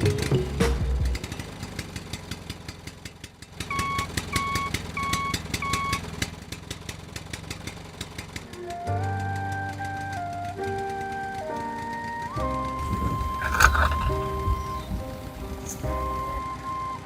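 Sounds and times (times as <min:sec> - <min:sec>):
small engine ticking: 0:01.1 - 0:09.2, 0:13.2 - 0:15.2.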